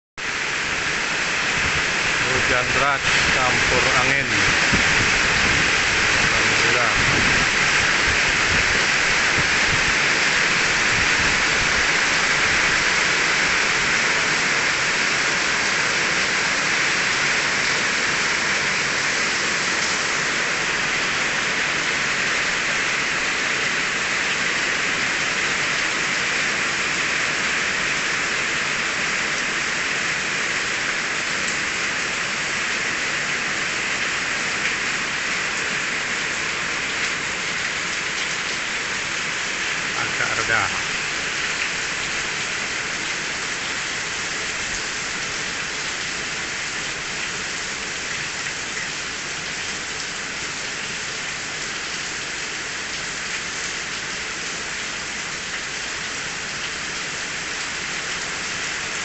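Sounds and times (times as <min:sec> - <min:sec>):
heavy rain falling: 0:00.2 - 0:59.0.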